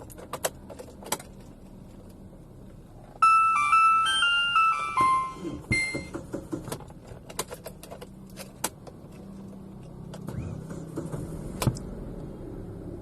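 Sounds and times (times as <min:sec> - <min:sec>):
electronic start-up chime: 0:03.2 - 0:06.1
car starter cranking: 0:10.1 - 0:11.8.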